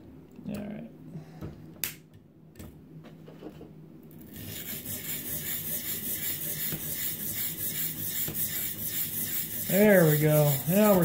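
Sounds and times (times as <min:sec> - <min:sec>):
sharpening stone rasping on knife: 0:04.3 - 0:11.0.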